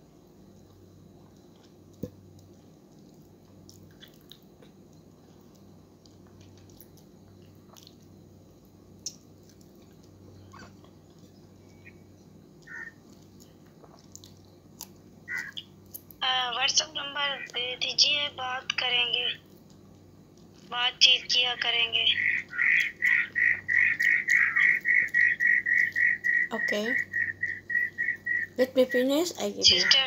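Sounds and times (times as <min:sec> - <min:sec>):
steady low hum: 0:00.0 - 0:30.0
soft chewing and mouth sounds: 0:00.5 - 0:11.8, 0:12.5 - 0:16.2, 0:19.4 - 0:20.7.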